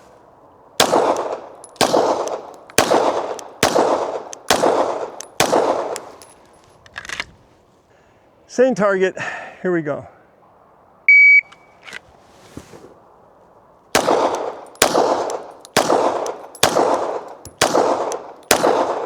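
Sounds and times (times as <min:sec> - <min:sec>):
pistol shots: 0:00.8 - 0:06.3, 0:13.9 - 0:19.0
shot timer beep: 0:11.1 - 0:11.7.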